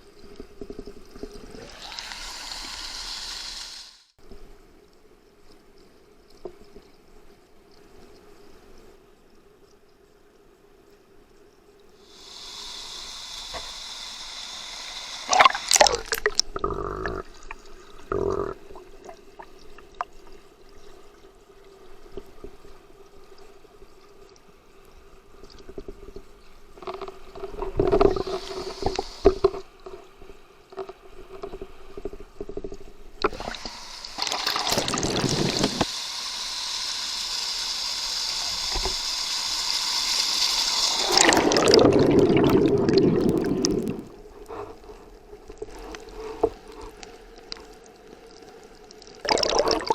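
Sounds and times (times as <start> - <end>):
creek water gurgling: 15.3 - 20.1, 33.2 - 35.9, 40.9 - 47.6, 48.2 - 49.9.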